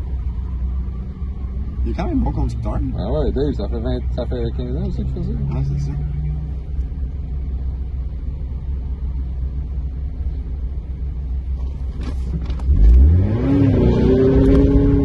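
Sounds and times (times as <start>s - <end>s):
car engine revving and accelerating: 0.0s - 7.3s, 11.8s - 15.0s.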